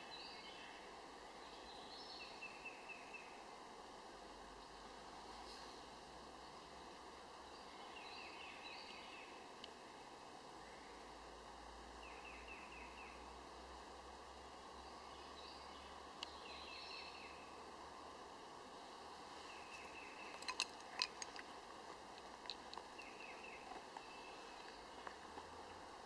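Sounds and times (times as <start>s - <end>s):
bird chirping: 1.4s - 3.4s, 7.4s - 9.4s, 12.0s - 13.2s, 14.8s - 17.6s, 19.4s - 21.4s, 22.5s - 25.9s.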